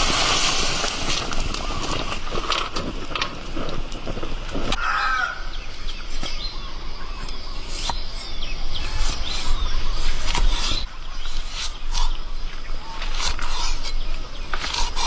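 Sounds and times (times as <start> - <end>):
birds chirping: 4.2 - 15.0.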